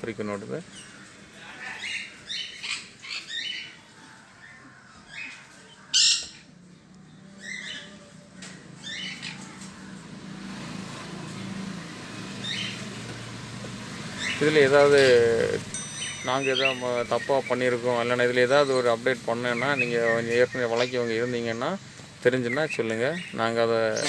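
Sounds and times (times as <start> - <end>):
parrots squawking: 0.6 - 6.6, 7.4 - 10.1, 12.4 - 13.0, 14.0 - 21.6, 22.4 - 24.0.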